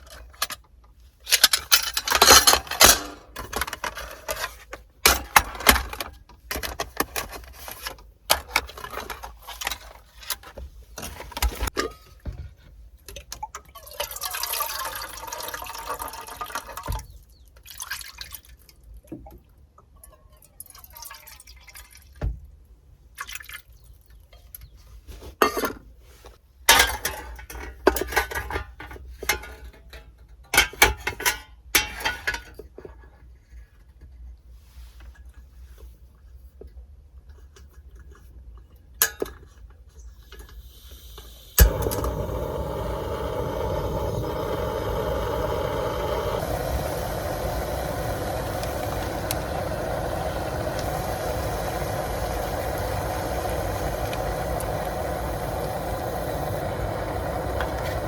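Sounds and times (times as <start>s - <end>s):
liquid pouring: 13.7s - 16.7s, 40.8s - 58.0s.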